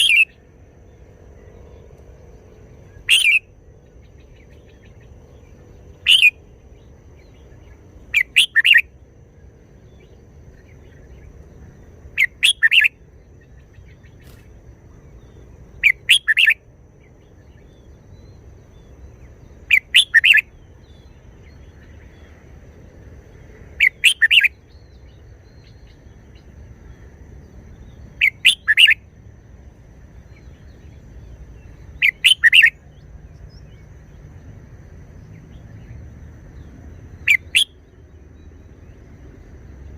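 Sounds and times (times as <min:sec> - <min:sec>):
bird singing short phrases: 0:00.0 - 0:00.5, 0:02.8 - 0:08.9, 0:09.9 - 0:22.2, 0:23.8 - 0:26.5, 0:27.7 - 0:29.0, 0:30.3 - 0:33.9, 0:36.6 - 0:37.9
faint low hum: 0:00.0 - 0:39.9.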